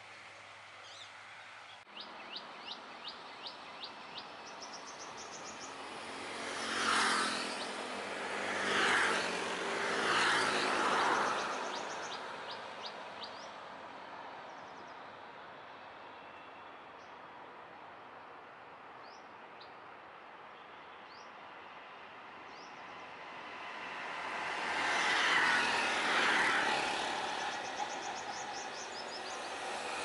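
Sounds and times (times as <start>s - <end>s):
small birds chirping: 27.4s - 30.0s.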